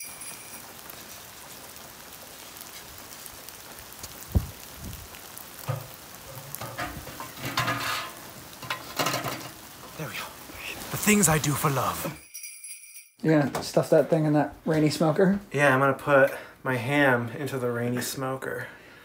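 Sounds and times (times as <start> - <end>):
rain falling: 0.0 - 12.3, 13.2 - 19.0
metal clanks: 5.7 - 9.6.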